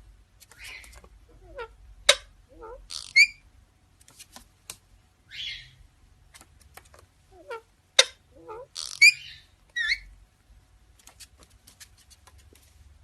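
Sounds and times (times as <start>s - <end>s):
parrot clicks whistles and squawks: 2.9s - 3.4s.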